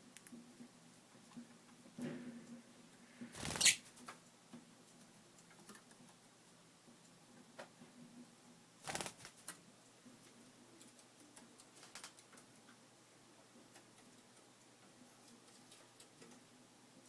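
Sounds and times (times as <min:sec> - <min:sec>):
birds clicking and scratching: 0:03.4 - 0:04.2, 0:08.9 - 0:09.6, 0:10.8 - 0:12.8, 0:13.6 - 0:16.5.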